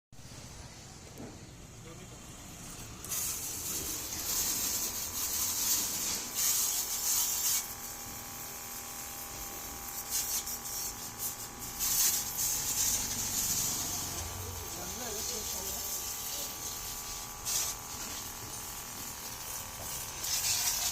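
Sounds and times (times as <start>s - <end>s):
water jet spraying with a hiss: 1.8s - 20.9s
pressure washer pump whining: 2.3s - 20.9s.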